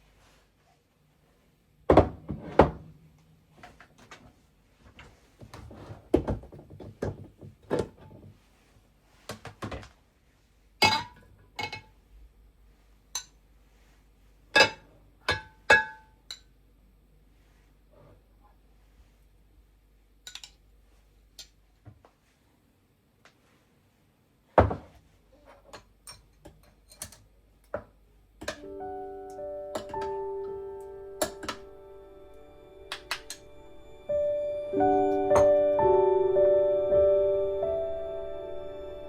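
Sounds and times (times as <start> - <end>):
kitchenware knocks and thuds: 1.9 - 2.9, 5.7 - 8.3, 24.6 - 25.0.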